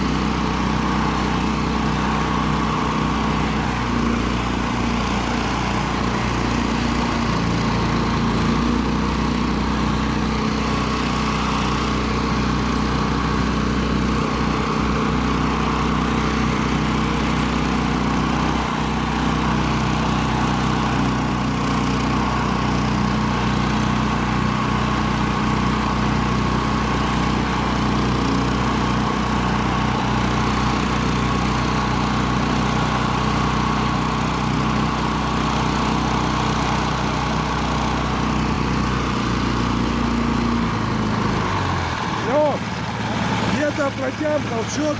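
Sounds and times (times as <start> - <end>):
snow vehicle engine running: 0.0 - 44.9.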